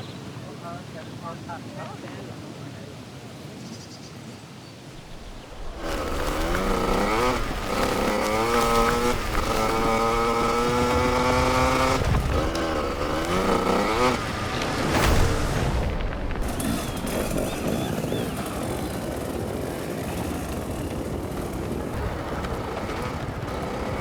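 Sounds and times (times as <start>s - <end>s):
din of other bikes: 4.9s - 24.0s
dirt bike engine revving: 5.0s - 24.0s.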